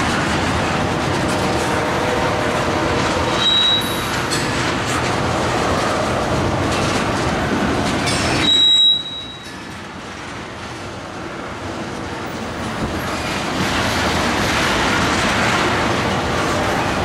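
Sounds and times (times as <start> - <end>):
steel wheels on rail: 0.0 - 17.0
high wheel squeal: 3.3 - 4.2, 8.1 - 9.8.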